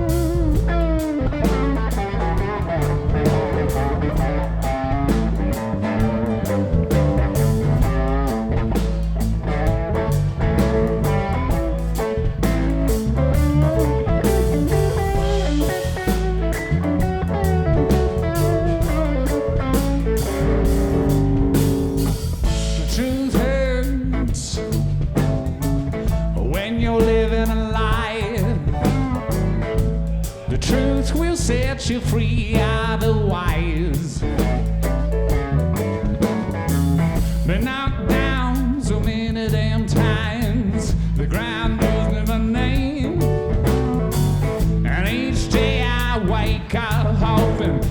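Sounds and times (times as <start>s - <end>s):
guitar bending high notes: 0.0s - 23.2s
blues-rock band playing: 0.0s - 47.9s.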